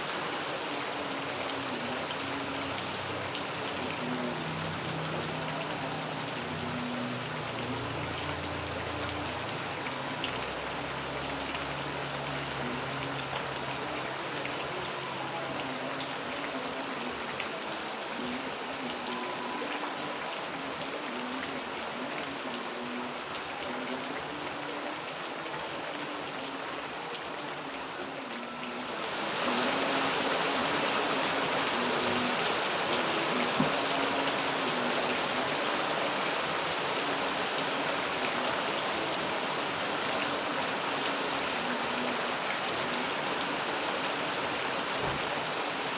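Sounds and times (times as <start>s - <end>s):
rain falling steadily: 0.0s - 45.9s.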